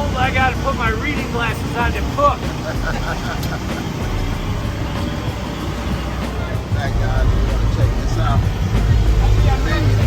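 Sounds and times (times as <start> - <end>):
generators running: 0.0 - 10.0
outdoor crowd hubbub: 0.0 - 10.0.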